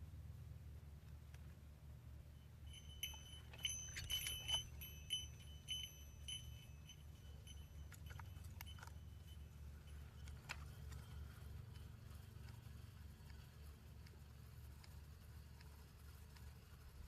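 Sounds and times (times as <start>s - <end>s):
bite alarm bell dinging: 2.6s - 12.0s
faint clicks: 7.5s - 17.0s.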